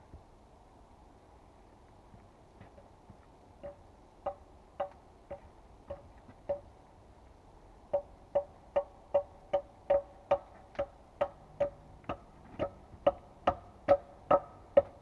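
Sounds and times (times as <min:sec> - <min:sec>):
tool striking wood: 0:03.6 - 0:06.6, 0:07.9 - 0:15.0.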